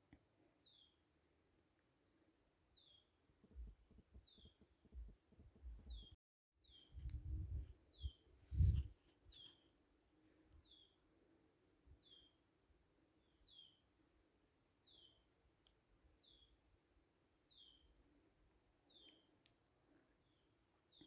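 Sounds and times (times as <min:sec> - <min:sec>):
low rumbling thumps: 0:07.0 - 0:08.9.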